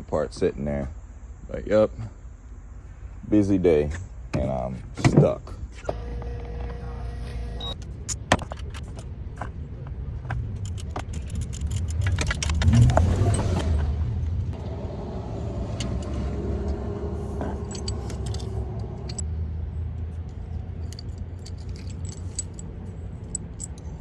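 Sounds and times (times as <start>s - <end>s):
faint hum: 0.0s - 10.9s
low vehicle rumble: 0.0s - 24.0s
light metallic clinks and jangles: 10.5s - 12.6s, 16.7s - 19.3s, 20.1s - 24.0s.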